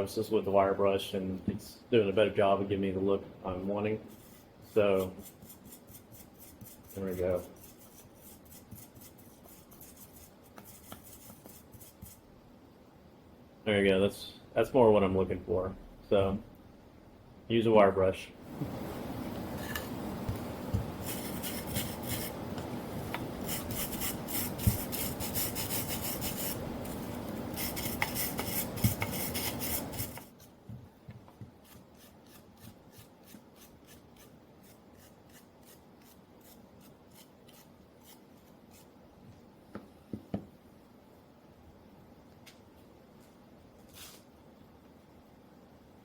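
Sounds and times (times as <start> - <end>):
light scrapes and taps: 8.5 - 12.2
wire brush scrubbing wood: 20.8 - 22.4, 23.3 - 30.6.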